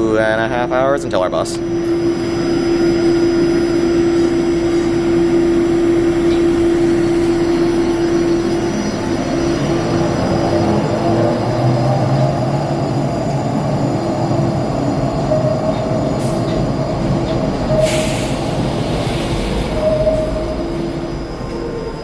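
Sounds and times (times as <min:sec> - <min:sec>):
light-rail train rumbling: 0:00.0 - 0:22.0
hiss of air: 0:17.8 - 0:19.8.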